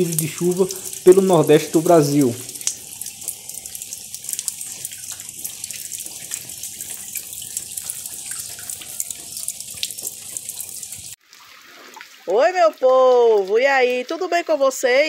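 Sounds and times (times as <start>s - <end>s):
steady rain falling: 0.0s - 11.2s
single raindrops close by: 0.0s - 14.0s.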